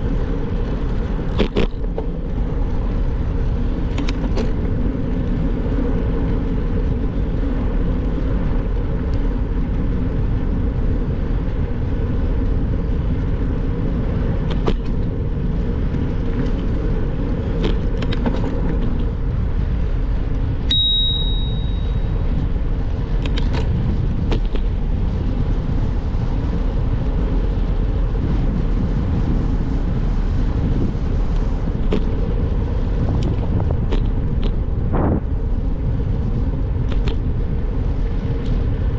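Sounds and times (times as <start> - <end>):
wind and road rumble: 0.0 - 38.9
small clicks and rattles: 3.8 - 5.3, 14.4 - 15.1, 15.9 - 19.2, 23.1 - 24.7, 36.8 - 37.2
short high ring: 20.7 - 22.1.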